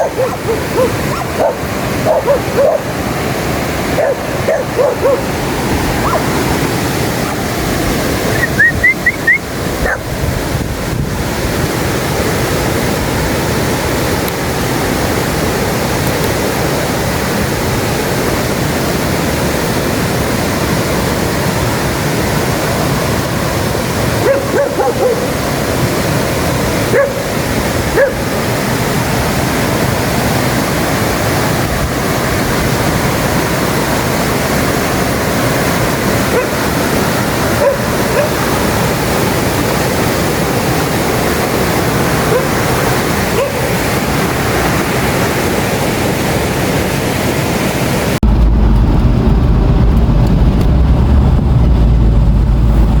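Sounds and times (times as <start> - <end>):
steady rushing noise: 0.0 - 53.0
high yelps: 6.0 - 6.3
deep low rumble: 48.2 - 53.0.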